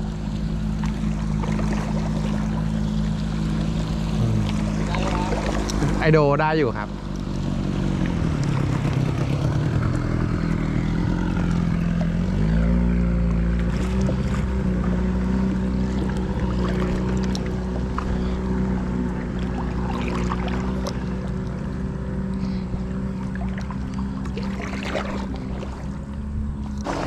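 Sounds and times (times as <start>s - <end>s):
motorboat engine running: 0.0s - 27.0s.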